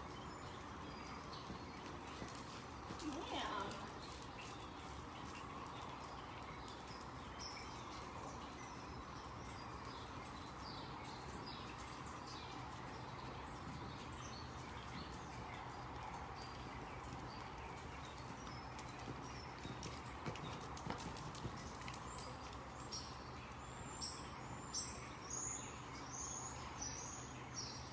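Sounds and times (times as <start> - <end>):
faint horse hoofbeats: 0.0 - 27.0
small birds chirping: 0.0 - 27.9
steady background noise: 0.0 - 27.9.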